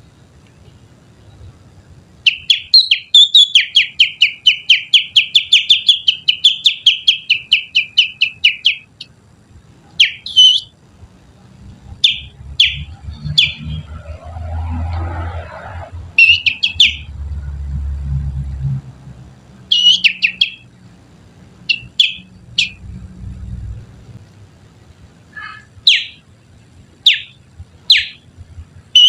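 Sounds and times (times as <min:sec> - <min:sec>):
low hum: 0:00.0 - 0:29.0
finger whistling: 0:19.7 - 0:20.6.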